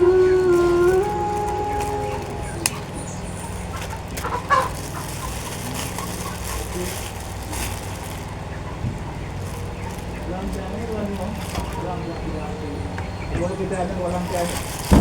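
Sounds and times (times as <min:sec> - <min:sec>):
chickens clucking: 0:00.0 - 0:15.0
steady low hum: 0:00.0 - 0:15.0.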